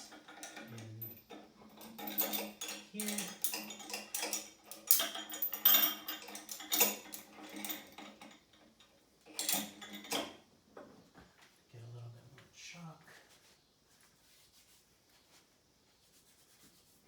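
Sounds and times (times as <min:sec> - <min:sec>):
metal weight plates clinking: 0:00.0 - 0:08.4.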